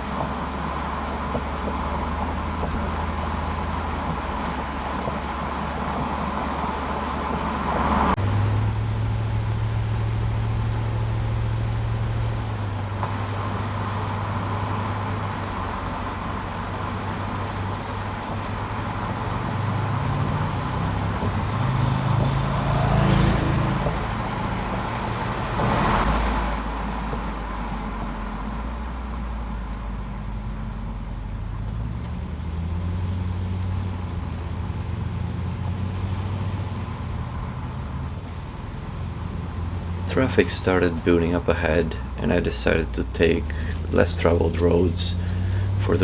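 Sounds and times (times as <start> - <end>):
road noise: 0.0 - 28.0, 39.0 - 46.0
car exhaust while driving: 0.0 - 37.2, 39.2 - 46.0.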